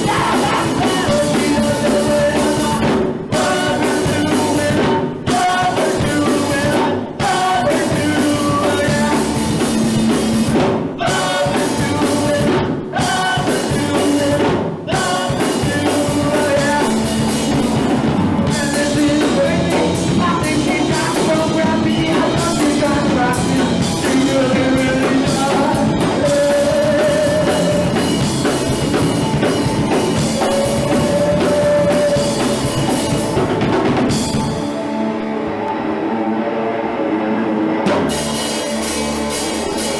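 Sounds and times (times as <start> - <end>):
person singing: 0.0 - 9.8, 10.5 - 39.9
drum kit: 0.0 - 35.3, 37.8 - 39.9
punk rock band playing live: 0.0 - 39.9.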